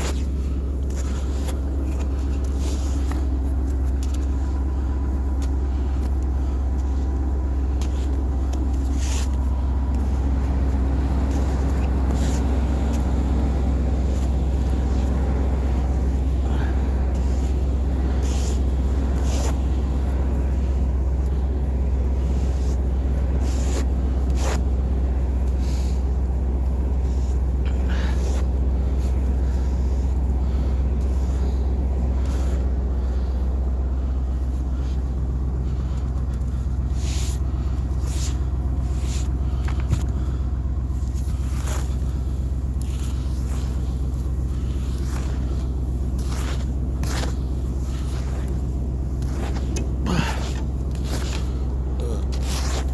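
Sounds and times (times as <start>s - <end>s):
higher hum: 0.0s - 52.9s
truck engine idling: 0.0s - 52.9s.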